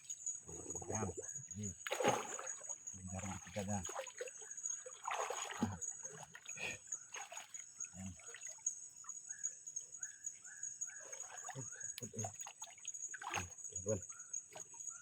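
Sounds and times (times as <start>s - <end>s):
high insect whine: 0.0s - 15.0s
river water splashing: 1.8s - 8.6s, 11.0s - 13.6s.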